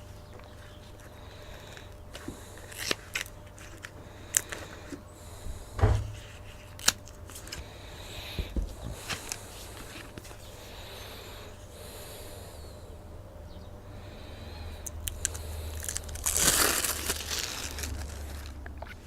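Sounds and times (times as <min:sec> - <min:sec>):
tape crinkling: 0:00.4 - 0:05.0, 0:06.0 - 0:07.7, 0:08.6 - 0:10.5, 0:14.8 - 0:19.0
dull thump: 0:05.4 - 0:06.3, 0:08.4 - 0:09.1.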